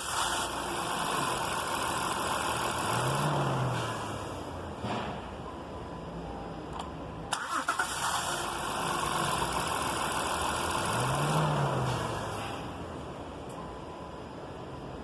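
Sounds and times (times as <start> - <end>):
car engine running: 0.0 - 4.8.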